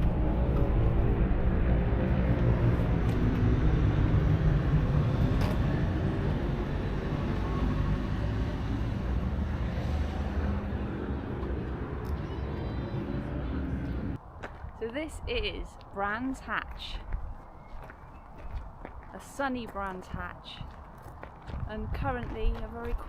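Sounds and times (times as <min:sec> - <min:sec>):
vehicle engine rumbling: 0:00.0 - 0:14.8.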